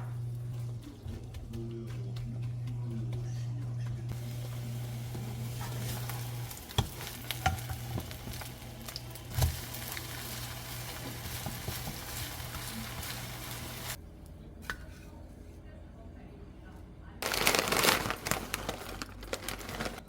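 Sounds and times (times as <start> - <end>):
batter sizzling in oil: 4.1 - 14.0.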